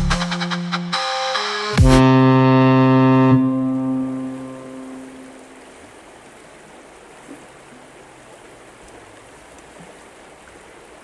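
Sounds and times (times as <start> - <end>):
held music notes: 0.0 - 5.6
steady rain falling: 3.2 - 11.0.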